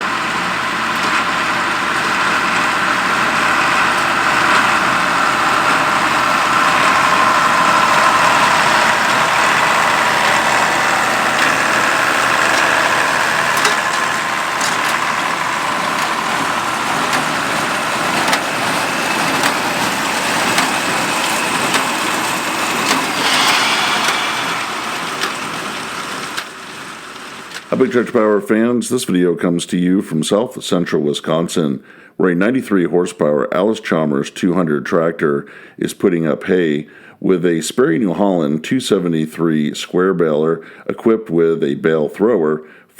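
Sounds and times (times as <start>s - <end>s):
tractor diesel engine running: 0.0s - 28.2s
sharp knocks: 22.8s - 26.6s.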